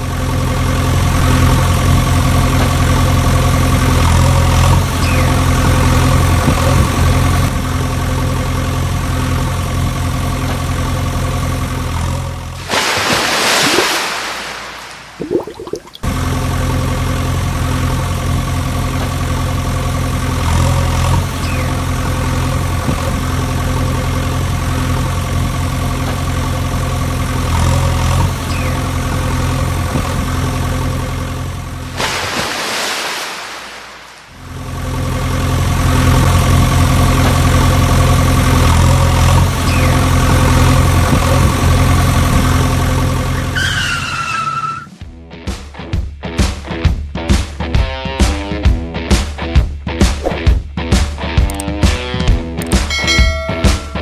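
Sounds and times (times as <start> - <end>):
vehicle engine idling: 0.0 - 12.6, 16.0 - 32.0, 34.3 - 44.0
short falling tone: 52.9 - 54.0.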